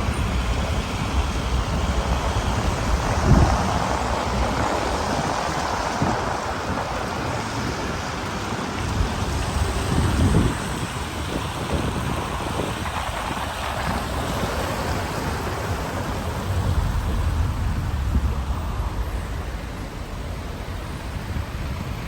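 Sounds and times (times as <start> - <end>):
rain falling on street: 0.0 - 22.0
low rumble: 15.4 - 21.4.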